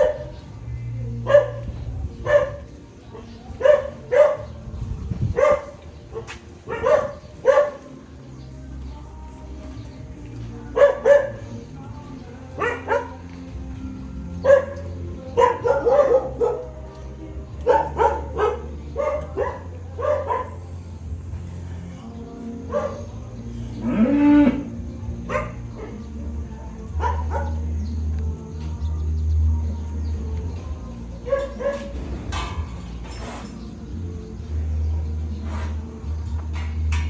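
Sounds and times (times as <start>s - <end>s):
cattle mooing: 23.6s - 24.9s.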